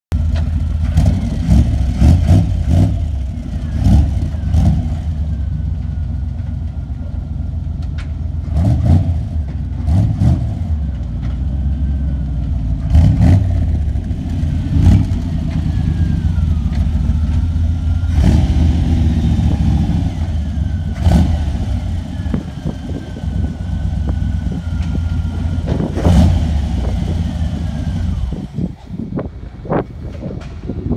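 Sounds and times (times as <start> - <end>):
car engine revving: 0.3 - 5.4, 8.4 - 11.4, 12.7 - 29.3.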